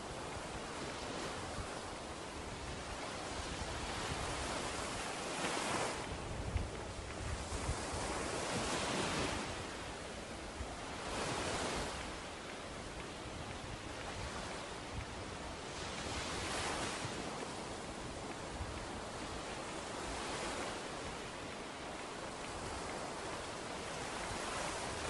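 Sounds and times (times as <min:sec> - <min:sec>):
surf breaking on beach: 0:00.0 - 0:09.9
wind rumbling on microphone: 0:00.0 - 0:25.0.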